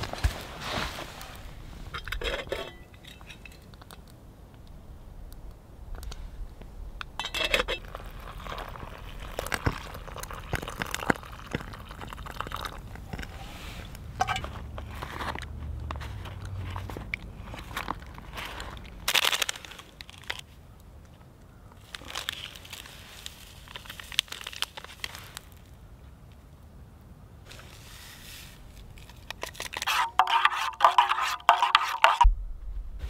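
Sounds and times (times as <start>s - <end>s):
hot water pouring: 7.2s - 14.4s
foil pouch crinkling: 16.6s - 20.5s, 21.8s - 25.6s
spoon stirring in pouch: 29.0s - 32.2s.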